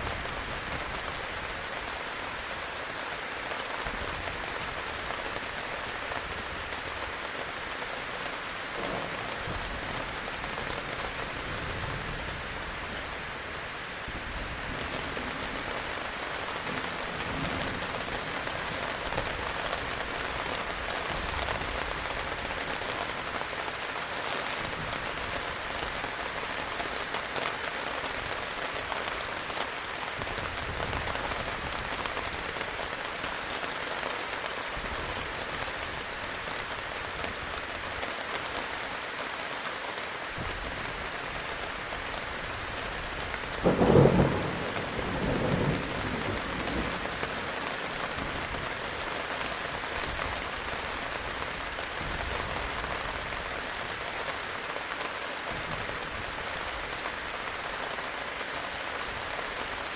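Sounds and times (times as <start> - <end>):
heavy rain falling: 0.0 - 59.9
thunder clap: 8.8 - 10.1, 43.6 - 47.4.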